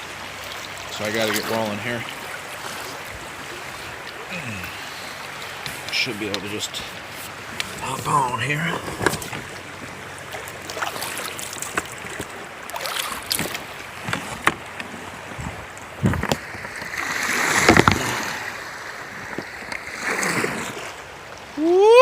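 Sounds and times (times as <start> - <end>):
rushing splashing water: 0.0 - 22.0
knocks of hull and paddle: 8.7 - 18.4.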